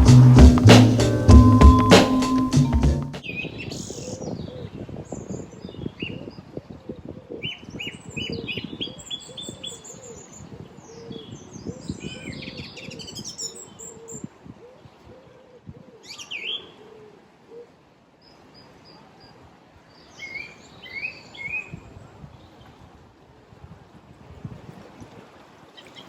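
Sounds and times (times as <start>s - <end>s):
low repeated bird call: 0.0s - 4.4s.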